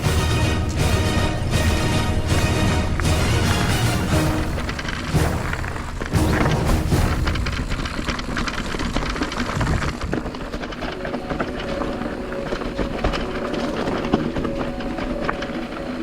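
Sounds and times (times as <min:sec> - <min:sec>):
background music with held notes: 0:00.0 - 0:07.3, 0:11.0 - 0:16.0
bike tyres on rough trail: 0:00.0 - 0:16.0
bike rattling and knocking: 0:04.4 - 0:16.0.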